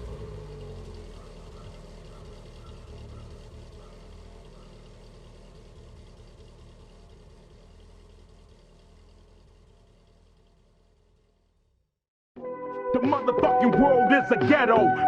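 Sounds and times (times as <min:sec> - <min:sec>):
car engine rumbling low: 0:00.0 - 0:11.9.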